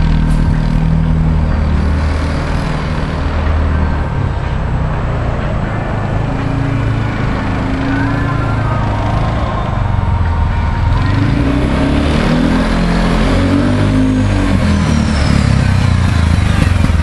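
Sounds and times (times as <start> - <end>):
atv engine accelerating: 0.0 - 17.0.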